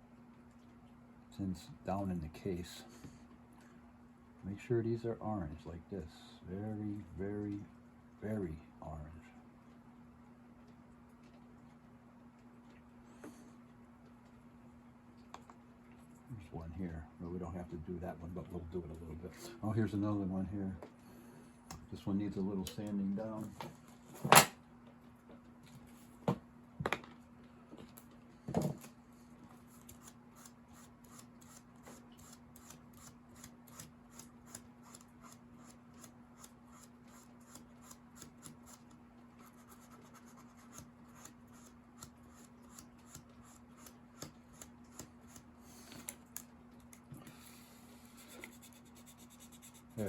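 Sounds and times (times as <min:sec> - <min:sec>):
steady low hum: 0:00.0 - 0:50.0
hand sanding scratching strokes: 0:48.0 - 0:50.0.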